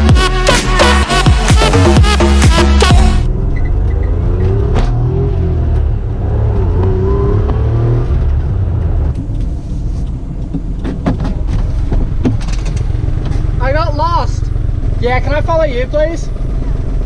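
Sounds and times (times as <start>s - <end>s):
small car engine revving: 3.3s - 9.2s.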